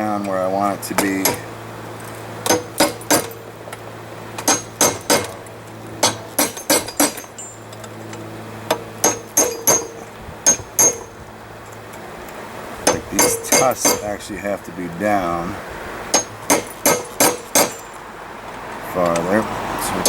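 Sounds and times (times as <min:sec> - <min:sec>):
steady low hum: 0:00.0 - 0:20.0
hammer ringing on anvil: 0:01.0 - 0:01.5, 0:04.5 - 0:05.4, 0:06.0 - 0:07.6, 0:09.0 - 0:11.2, 0:12.9 - 0:14.2, 0:16.1 - 0:17.9.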